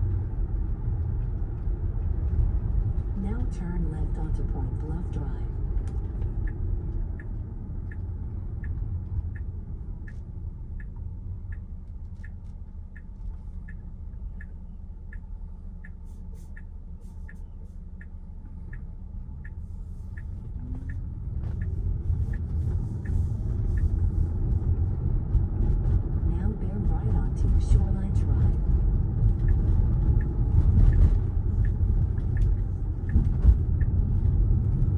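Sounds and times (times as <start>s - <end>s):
road and tyre rumble: 0.0s - 34.9s
turn signal ticking: 0.0s - 34.9s.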